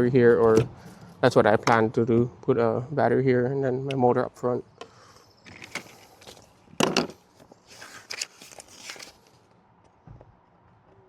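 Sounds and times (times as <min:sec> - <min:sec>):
handling rustles and knocks: 0:05.5 - 0:10.3.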